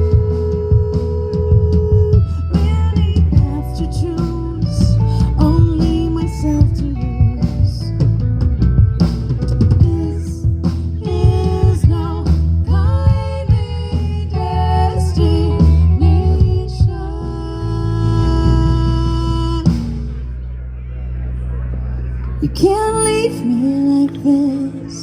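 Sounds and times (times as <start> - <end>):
person singing: 0.0 - 8.0, 9.8 - 19.8, 22.3 - 25.0
drum kit: 0.0 - 17.4, 18.0 - 20.4
guitar: 0.0 - 25.0.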